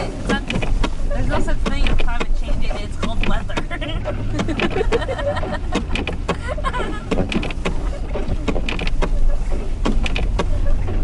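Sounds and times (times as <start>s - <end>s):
road rumble in car: 0.0s - 11.0s.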